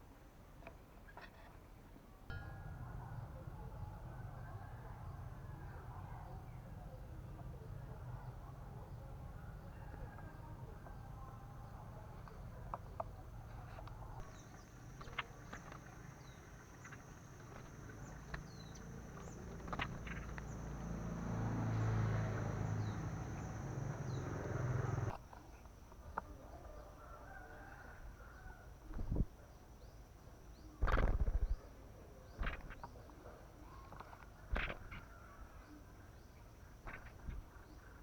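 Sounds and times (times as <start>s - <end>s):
steady high whine: 2.3s - 9.4s, 14.2s - 25.2s
low rumble: 2.3s - 9.8s
small birds chirping: 5.6s - 25.2s.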